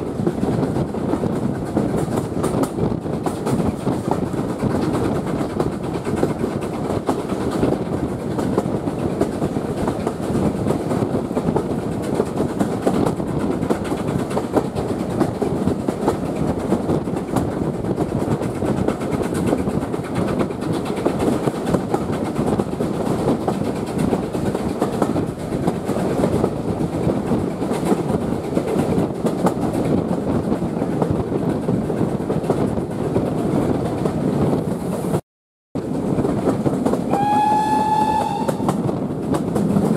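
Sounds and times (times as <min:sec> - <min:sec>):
steam train rumble: 0:00.0 - 0:35.2, 0:35.8 - 0:39.9
wheels clattering over rails: 0:35.8 - 0:39.9.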